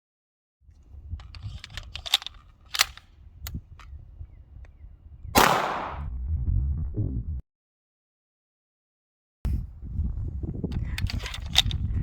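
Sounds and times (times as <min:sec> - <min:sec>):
low rumble: 0:03.1 - 0:07.4
loud gunshot bang with ring: 0:05.4 - 0:06.1.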